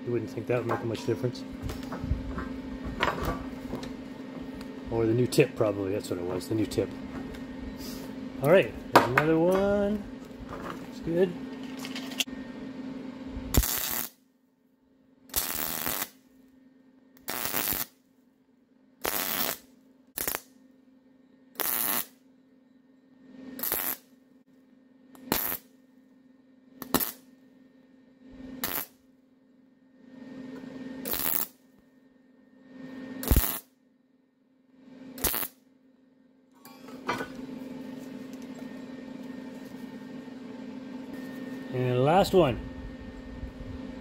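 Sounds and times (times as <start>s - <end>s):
welder crackling bursts: 13.5s - 14.2s, 15.3s - 16.2s, 17.2s - 18.0s, 19.0s - 20.6s, 21.5s - 22.2s, 23.6s - 24.1s, 25.1s - 25.7s, 26.8s - 27.3s, 28.6s - 29.0s, 31.0s - 31.6s, 33.2s - 33.7s, 35.1s - 35.6s.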